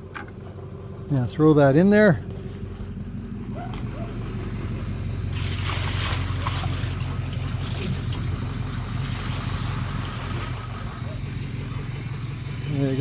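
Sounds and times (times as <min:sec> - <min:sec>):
water pouring into washing machine tub: 0:05.3 - 0:11.1.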